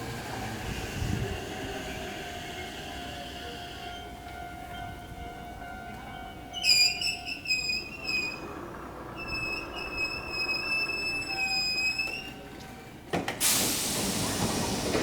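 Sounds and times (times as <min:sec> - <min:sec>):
train brakes squealing: 0:06.5 - 0:12.5, 0:13.4 - 0:15.0
compressed air hiss: 0:13.4 - 0:15.0.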